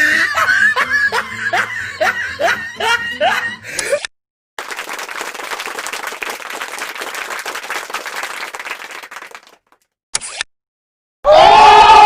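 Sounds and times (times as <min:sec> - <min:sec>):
many hands clapping: 0:04.6 - 0:09.9.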